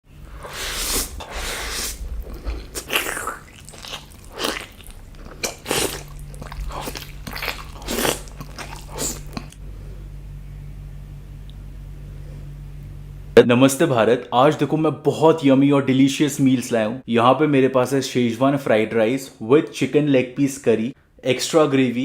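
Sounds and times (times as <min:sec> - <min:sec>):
steady low hum: 0:00.0 - 0:15.0
person chewing crunchy food: 0:00.3 - 0:09.6.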